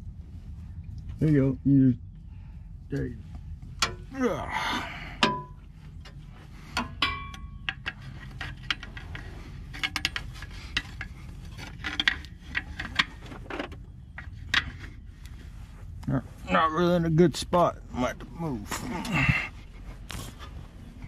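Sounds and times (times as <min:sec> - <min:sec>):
ringing metal clink: 0:06.8 - 0:07.8.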